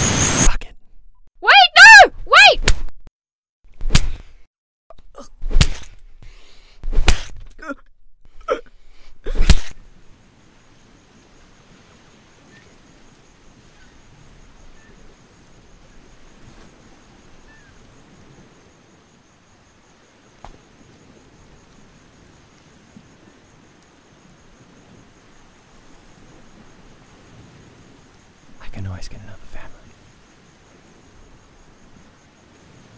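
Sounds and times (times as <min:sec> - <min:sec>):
steady background hiss: 0:08.9 - 0:32.9.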